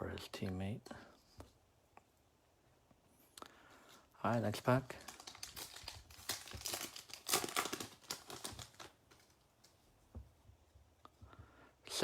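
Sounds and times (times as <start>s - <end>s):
foil wrapper tearing and crinkling: 4.3s - 9.4s.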